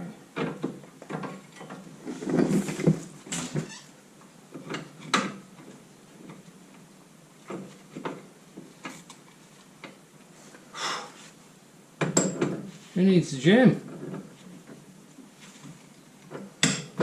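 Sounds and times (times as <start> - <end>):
rustling: 13.8 - 16.4.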